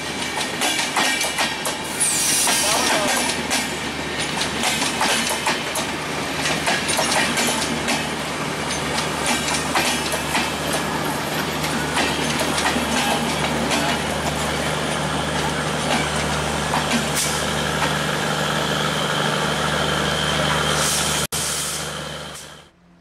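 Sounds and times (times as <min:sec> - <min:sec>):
train wheels clattering over joints: 0:00.0 - 0:18.4
train rumble: 0:00.0 - 0:23.0.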